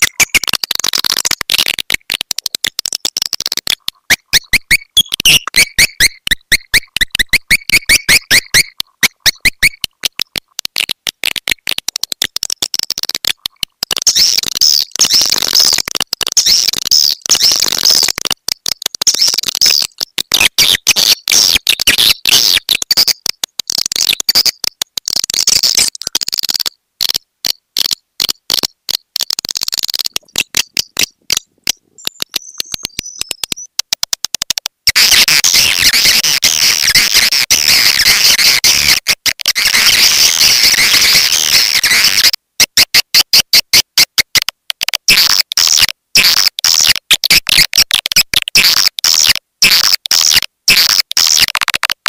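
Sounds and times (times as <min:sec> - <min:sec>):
swiftlets twittering and chirping: 0:00.0 - 0:01.7, 0:02.4 - 0:10.4, 0:12.0 - 0:18.2, 0:19.0 - 0:26.8, 0:27.4 - 0:33.8, 0:34.9 - 0:38.9.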